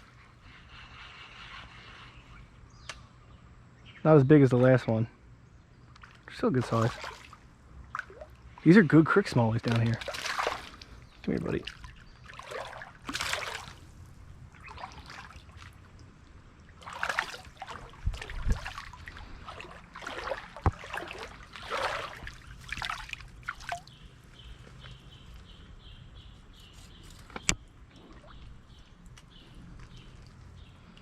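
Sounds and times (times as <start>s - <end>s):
water splashing and sloshing: 5.9s - 25.8s, 27.0s - 31.0s.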